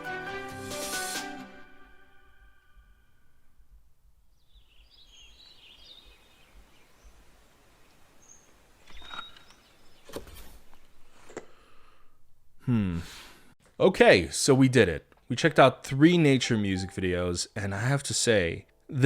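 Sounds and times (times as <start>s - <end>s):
faint bird-like chirps: 7.8s - 11.0s.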